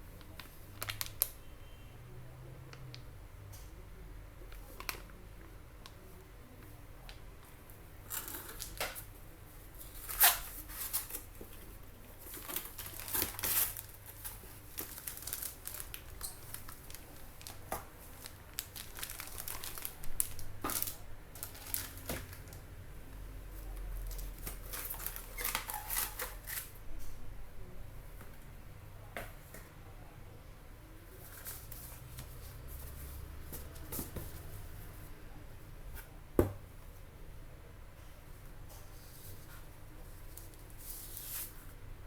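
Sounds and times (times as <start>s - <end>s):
packaging crinkling and rustling: 0.2s - 1.4s, 8.0s - 9.2s, 9.8s - 22.7s, 23.5s - 26.8s.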